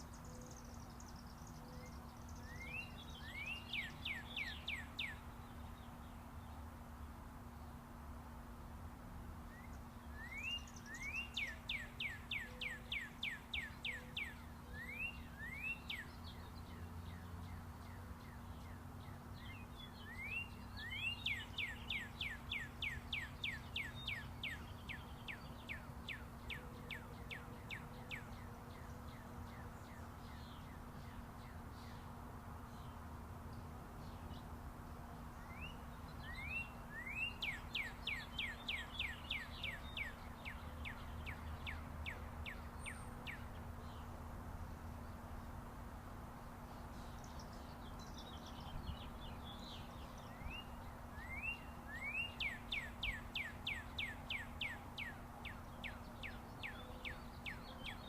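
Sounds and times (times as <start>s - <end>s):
distant highway traffic rumble: 0.0s - 58.0s
songbird singing: 0.0s - 58.0s.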